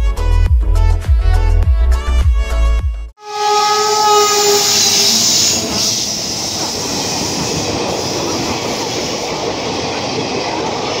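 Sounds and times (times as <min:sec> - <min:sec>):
train horn: 0:03.2 - 0:06.8
train wheels rattling on rails: 0:03.8 - 0:11.0.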